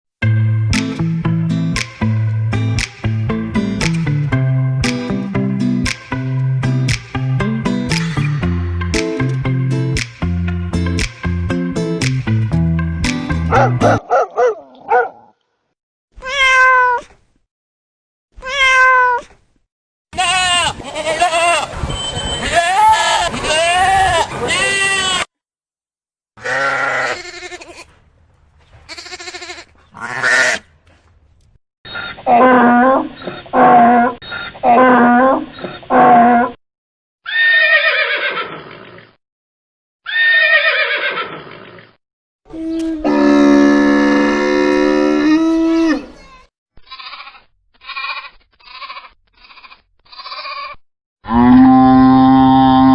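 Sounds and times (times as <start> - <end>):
music: 0.2 - 14.0
cat meowing: 16.2 - 17.0, 18.4 - 19.2
horse whinnying: 30.0 - 30.6, 37.3 - 38.9, 40.1 - 41.8.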